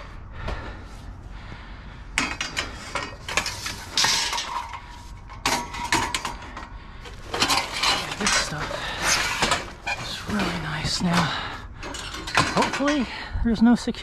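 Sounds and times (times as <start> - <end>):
scrap metal clanking: 2.2 - 13.3.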